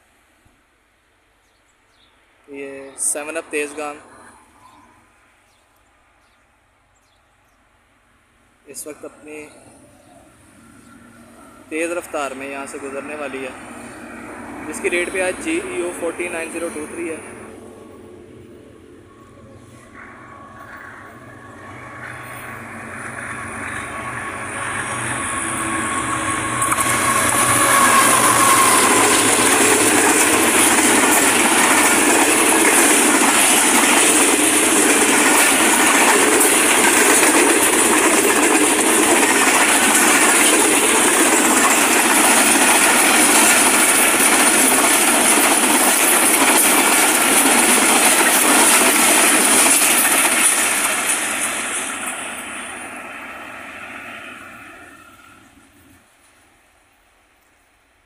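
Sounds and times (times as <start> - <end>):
diesel train passing at speed: 0.0 - 58.0.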